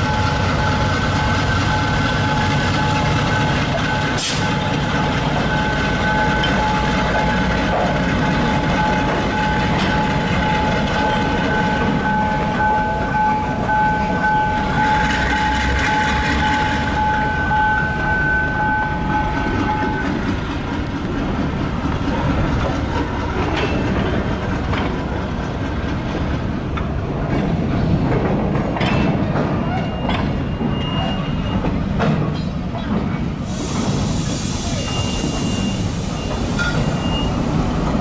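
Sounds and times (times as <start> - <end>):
steel wheels rumbling on rails: 0.0 - 38.0
clanks over rail joints: 22.1 - 34.0.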